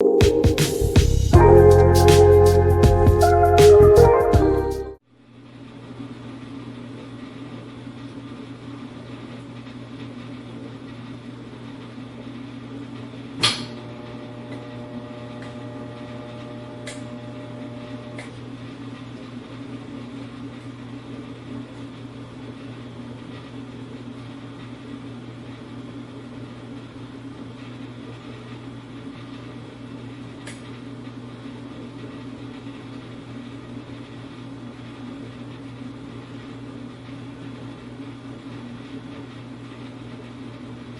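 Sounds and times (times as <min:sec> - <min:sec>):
dishwasher humming: 0:13.5 - 0:18.2.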